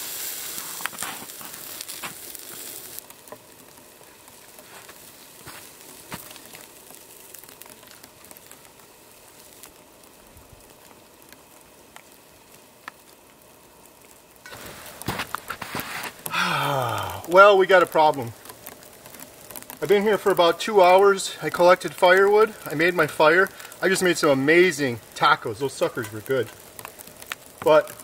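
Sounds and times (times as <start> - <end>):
food sizzling in a pan: 0.0 - 28.0
small ticks: 0.8 - 9.8, 10.6 - 13.4, 17.9 - 20.2, 25.9 - 28.0.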